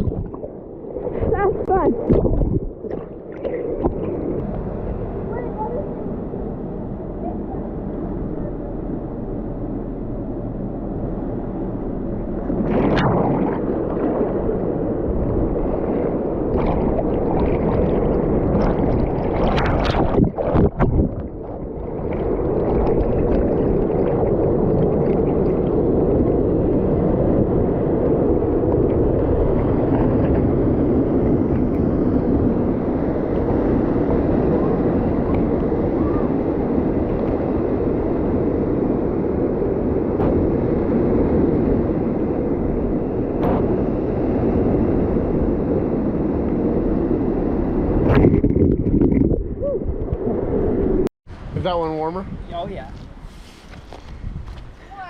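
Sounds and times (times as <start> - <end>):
water splashes: 0.0 - 5.5, 12.1 - 45.6.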